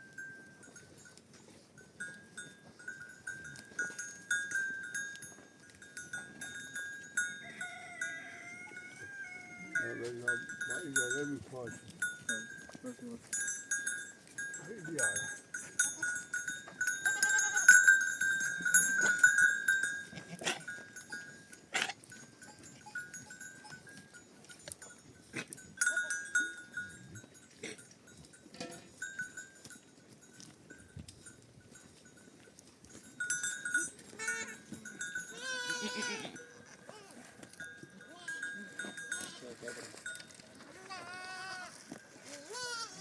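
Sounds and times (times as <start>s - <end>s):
livestock neck bells clinking: 0.0s - 43.0s
animal bleating: 7.5s - 10.2s, 17.0s - 17.8s, 34.1s - 34.6s, 35.3s - 37.3s, 38.0s - 39.6s, 40.6s - 43.0s.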